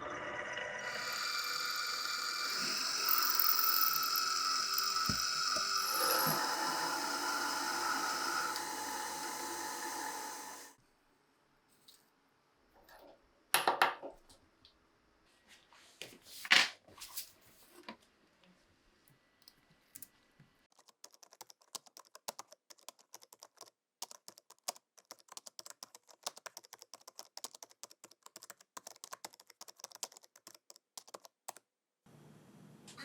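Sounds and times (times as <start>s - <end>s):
small hard parts clicking: 0.9s - 10.4s, 20.7s - 31.6s.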